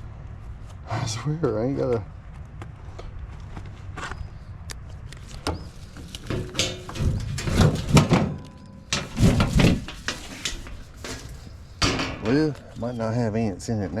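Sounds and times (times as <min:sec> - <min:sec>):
sheet metal panel clattering: 0:05.9 - 0:12.6.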